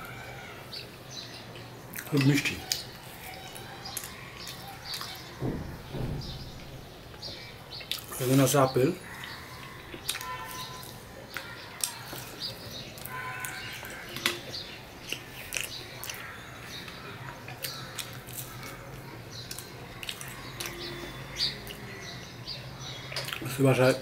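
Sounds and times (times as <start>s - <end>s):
mouth chewing sounds: 9.0s - 22.2s, 23.0s - 23.6s.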